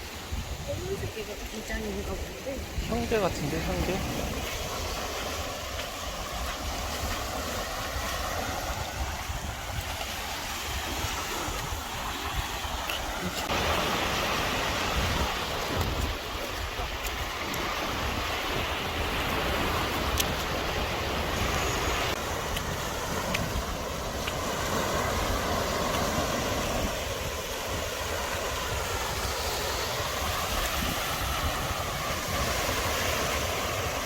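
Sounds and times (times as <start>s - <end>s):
surf washing on beach: 0.0s - 34.0s
wind buffeting microphone: 0.0s - 34.0s.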